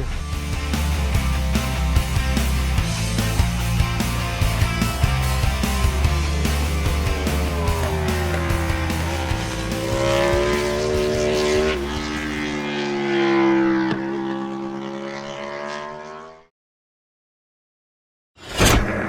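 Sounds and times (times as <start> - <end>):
background music: 0.0 - 12.6
motorcycle engine at high revs: 0.9 - 16.5.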